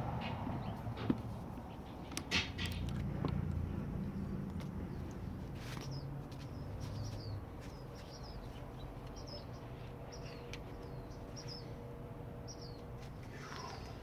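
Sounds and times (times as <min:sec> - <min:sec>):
small bird chirping: 0:05.8 - 0:11.8, 0:12.5 - 0:14.0.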